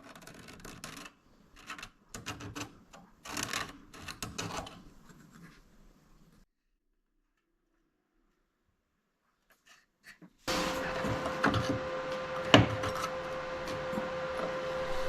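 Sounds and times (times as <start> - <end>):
hand scraping and rubbing: 9.5 - 15.0.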